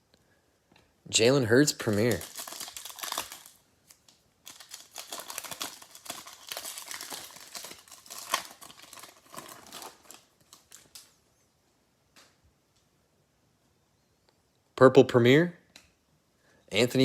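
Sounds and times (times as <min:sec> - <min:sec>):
foil pack crinkling: 0:01.2 - 0:11.2.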